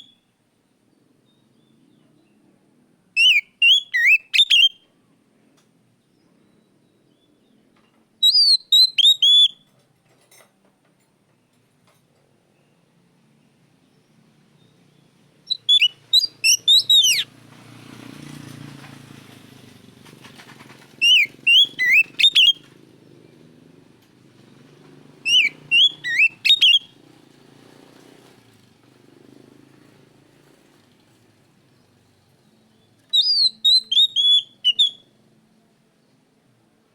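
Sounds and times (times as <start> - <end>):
bird singing sliding whistles: 3.2 - 4.8, 8.2 - 9.6, 15.5 - 17.3, 21.0 - 22.6, 25.2 - 26.9, 32.6 - 35.2.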